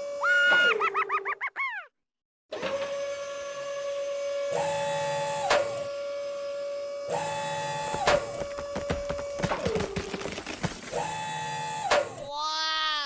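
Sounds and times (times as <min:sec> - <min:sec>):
toy electric motors whining: 0:02.6 - 0:12.3
higher-pitched motor whine: 0:02.7 - 0:09.8.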